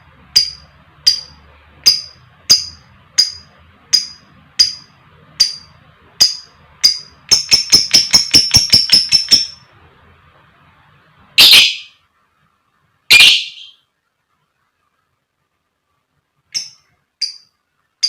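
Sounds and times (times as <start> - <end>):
lovebird chirping: 0.3 - 9.7, 11.4 - 12.0, 13.1 - 13.9, 16.5 - 17.6
lovebird screeching: 11.4 - 12.0, 13.1 - 13.8.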